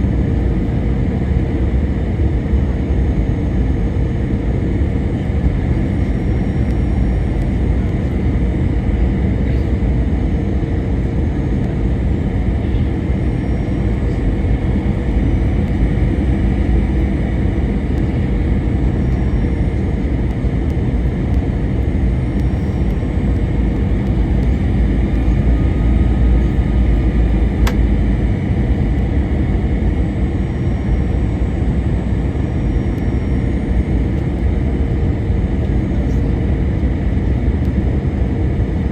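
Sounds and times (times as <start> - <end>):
airplane cabin engine rumble: 0.0 - 38.9
faint steady hum: 0.0 - 38.9
brief click: 27.6 - 27.8.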